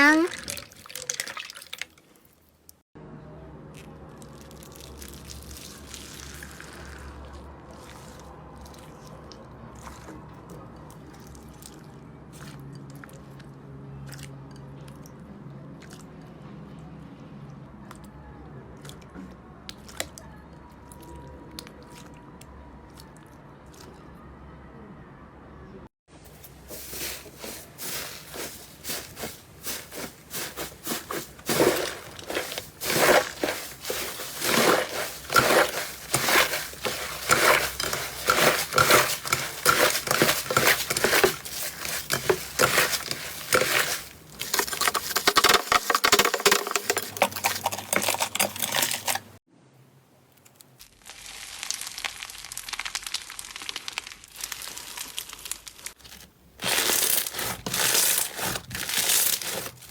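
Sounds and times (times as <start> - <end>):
slime squeezed crackling and popping: 3.7 - 10.0, 50.8 - 59.8.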